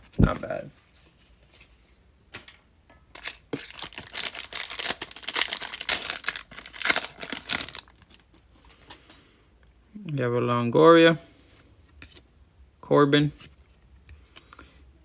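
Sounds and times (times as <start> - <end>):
foil wrapper crinkling and tearing: 3.2 - 9.0.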